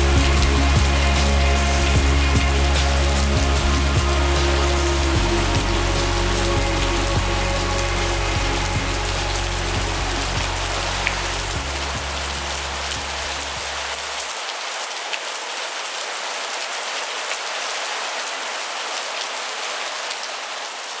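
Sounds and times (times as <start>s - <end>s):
low steady hum: 0.0s - 14.2s
heavy rain pouring: 0.0s - 21.0s.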